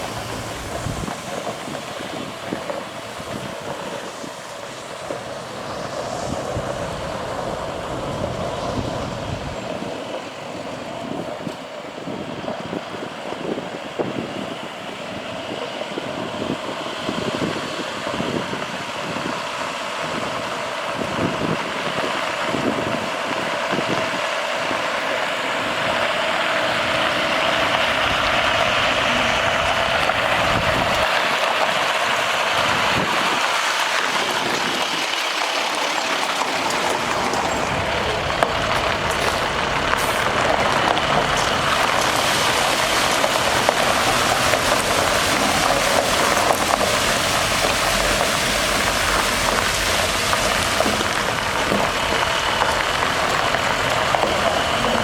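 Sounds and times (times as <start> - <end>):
water hissing from spray heads: 0.0 - 11.2, 24.6 - 55.0
truck diesel engine running: 0.0 - 55.0
spray pump running: 25.5 - 55.0.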